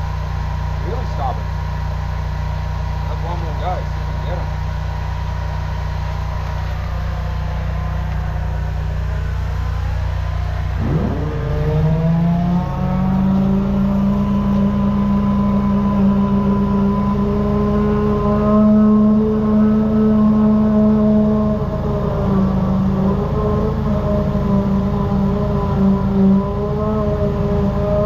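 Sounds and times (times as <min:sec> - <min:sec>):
drain jetter engine running: 0:00.0 - 0:28.0.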